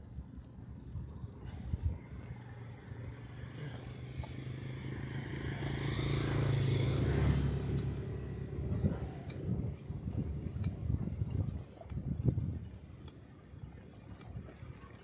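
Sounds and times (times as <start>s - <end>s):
vehicle engine passing: 2.4s - 9.7s.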